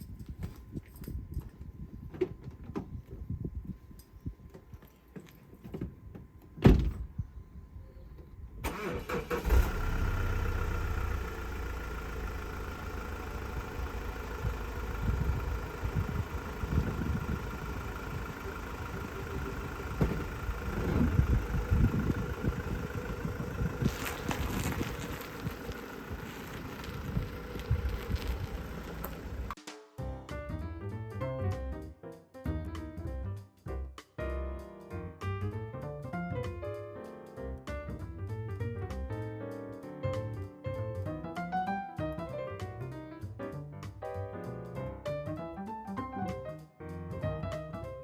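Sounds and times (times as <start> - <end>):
engine running: 8.6 - 29.6
loud thump: 20.0 - 20.3.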